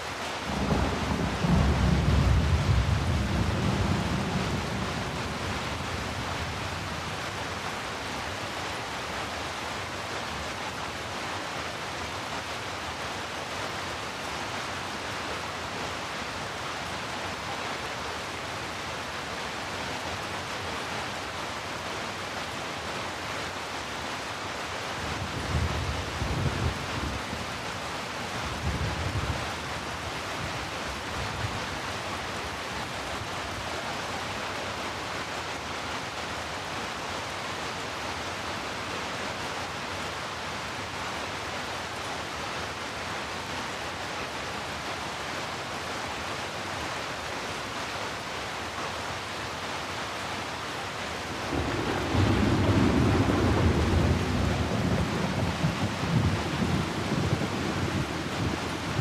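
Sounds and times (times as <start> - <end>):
heavy rain falling: 0.0 - 59.0
thunder rumbling: 51.4 - 59.0.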